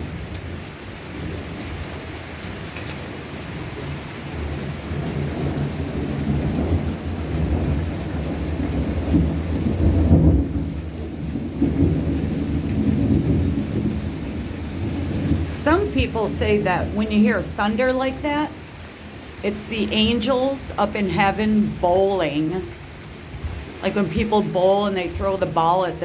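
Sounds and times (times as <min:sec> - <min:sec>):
steady rain: 0:00.0 - 0:26.0
rolling thunder: 0:04.9 - 0:15.6.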